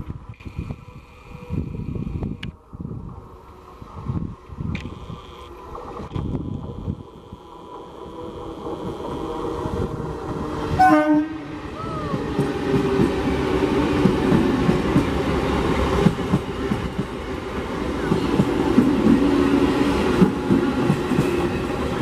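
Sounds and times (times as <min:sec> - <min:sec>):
train horn blast: 0:10.7 - 0:11.6
train wheels clattering: 0:18.0 - 0:22.0.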